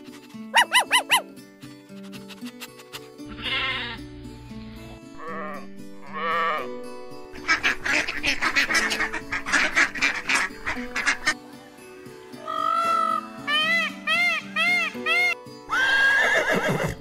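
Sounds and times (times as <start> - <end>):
background music: 0.0 - 17.0
sheep bleating: 3.3 - 4.1.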